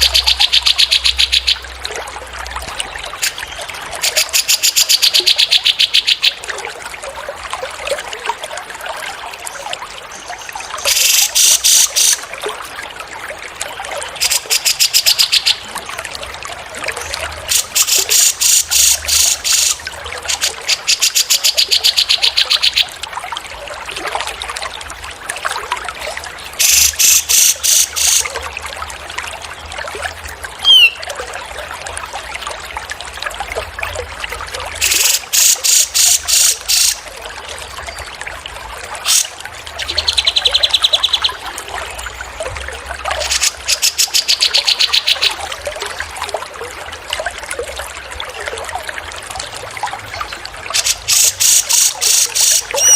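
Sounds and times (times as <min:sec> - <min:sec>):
trickle of running water: 0:00.0 - 0:52.9
songbird high trills: 0:30.6 - 0:31.0.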